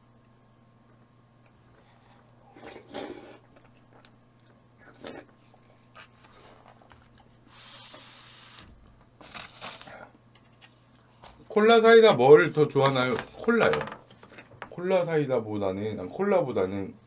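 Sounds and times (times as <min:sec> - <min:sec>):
steady low hum: 0:00.0 - 0:17.0
short breathy hiss: 0:07.5 - 0:08.7.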